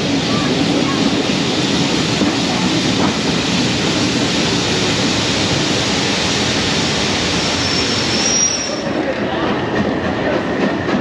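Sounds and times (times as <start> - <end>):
train rushing along track: 0.0 - 11.0.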